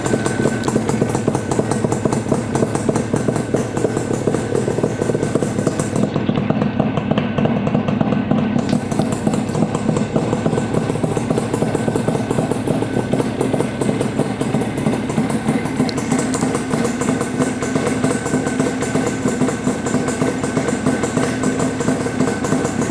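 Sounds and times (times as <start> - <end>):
two-stroke motorcycle engine idling: 0.0 - 22.9.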